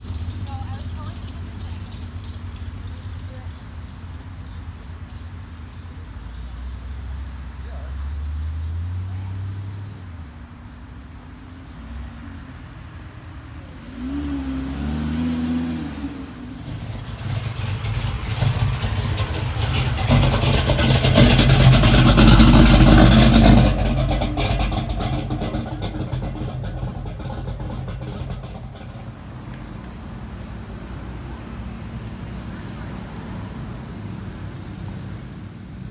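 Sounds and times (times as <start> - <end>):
car engine revving hard: 13.7 - 35.3.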